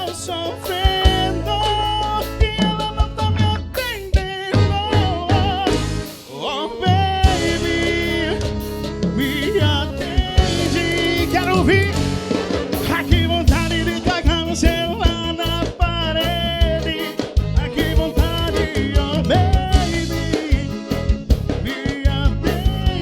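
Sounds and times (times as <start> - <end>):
live band instrumental music: 0.0 - 23.0.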